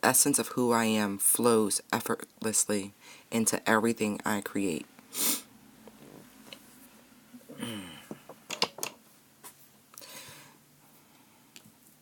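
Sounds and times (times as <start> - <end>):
person humming: 7.4 - 8.3.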